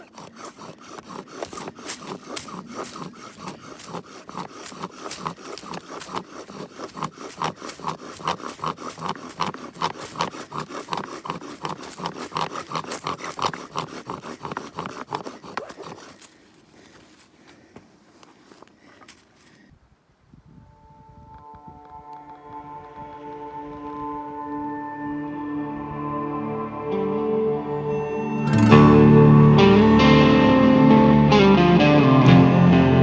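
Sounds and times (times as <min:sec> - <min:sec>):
fast scraping strokes: 0:00.0 - 0:19.6.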